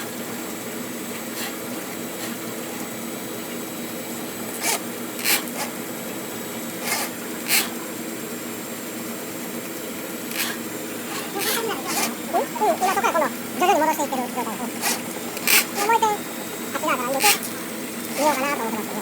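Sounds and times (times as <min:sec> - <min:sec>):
drain cleaning machine humming: 0:00.0 - 0:19.0
wire rasping against pipe: 0:04.5 - 0:05.8, 0:06.8 - 0:07.8, 0:10.3 - 0:13.0, 0:14.8 - 0:18.5.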